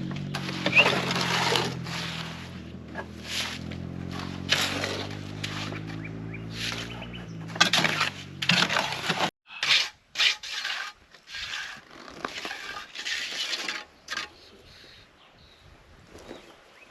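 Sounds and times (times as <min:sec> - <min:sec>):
engine hum: 0:00.0 - 0:09.3
gritty scraping and crunching: 0:00.0 - 0:14.6.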